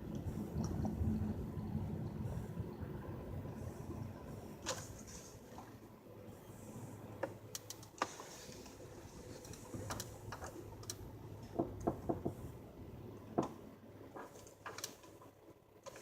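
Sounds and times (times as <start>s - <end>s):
steady low hum: 0.0s - 16.0s
car creaks and clicks: 14.2s - 15.2s.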